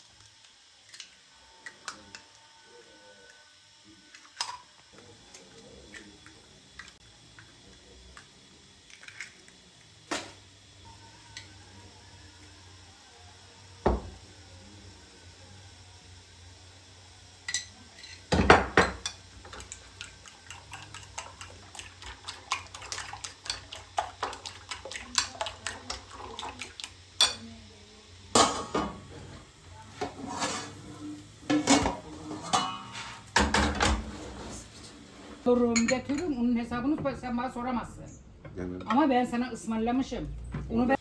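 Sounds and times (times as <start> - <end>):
cutlery clinking on dishes: 31.5 - 34.0.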